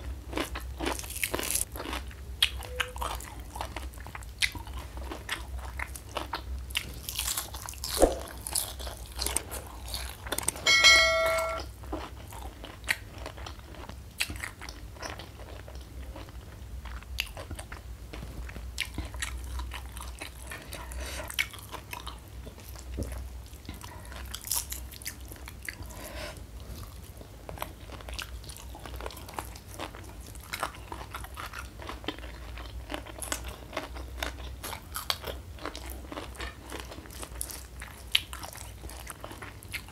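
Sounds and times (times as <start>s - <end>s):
crunching and chewing crispy food: 0.0s - 10.7s, 11.7s - 39.9s
raw vegetable bitten: 0.4s - 2.6s
short ringing clink: 10.6s - 11.6s.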